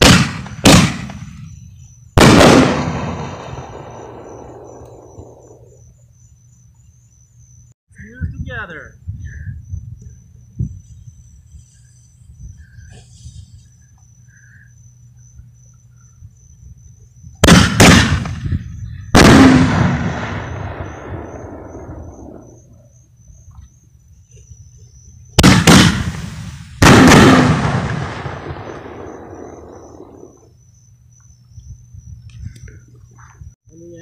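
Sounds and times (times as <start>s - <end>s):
firework launch crack: 0.0s - 1.5s, 2.2s - 5.7s, 17.4s - 18.6s, 19.2s - 22.5s, 25.4s - 30.5s
firework burst rumbling: 0.0s - 1.6s, 2.2s - 5.8s, 17.4s - 22.7s, 25.4s - 30.5s.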